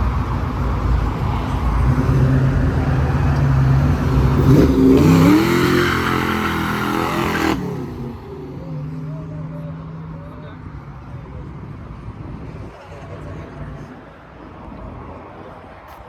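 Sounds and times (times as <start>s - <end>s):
car engine revving: 0.5s - 8.9s.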